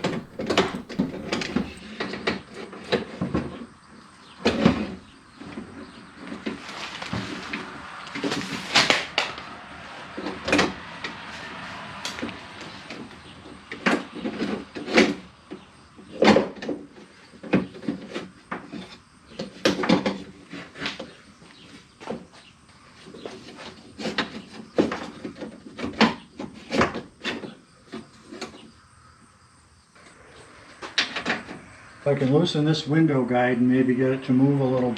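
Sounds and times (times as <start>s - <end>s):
metal knocks and clanks: 0.0s - 1.8s
rustling scrape: 0.0s - 1.8s.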